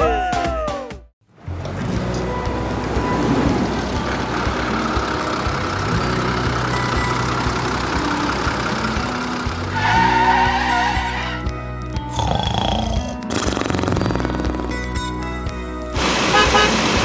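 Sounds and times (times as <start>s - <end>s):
vehicle engine humming: 1.4s - 11.4s.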